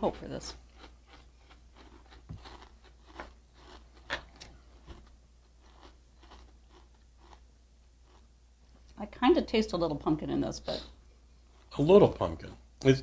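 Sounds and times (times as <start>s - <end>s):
cereal being chewed: 0.4s - 9.0s.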